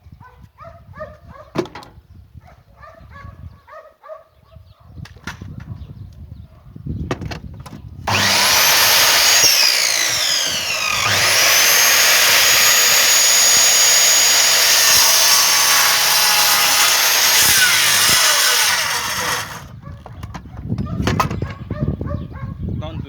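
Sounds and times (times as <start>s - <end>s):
electric saw cutting wood: 8.1s - 19.7s.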